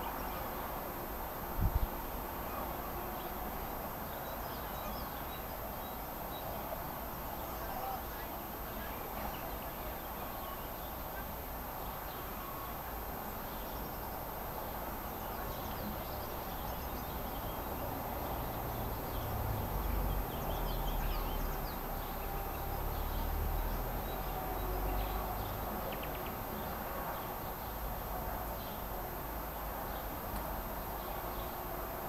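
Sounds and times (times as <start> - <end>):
outdoor background noise: 0.0 - 32.0
small birds chirping: 13.4 - 27.8.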